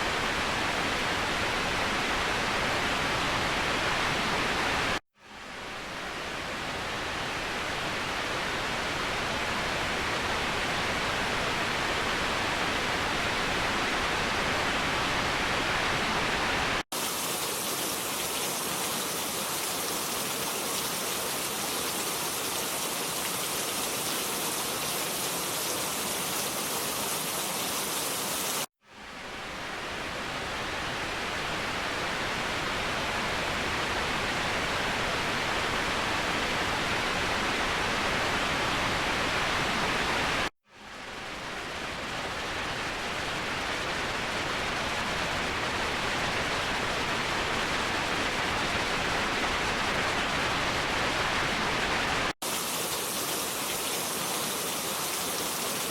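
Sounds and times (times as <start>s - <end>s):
waterfall rushing: 17.0s - 28.7s, 50.8s - 55.9s.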